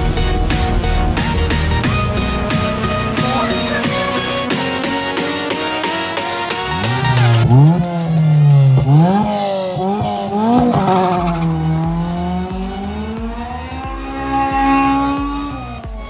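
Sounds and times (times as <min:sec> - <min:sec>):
car engine revving hard: 0:06.0 - 0:16.0.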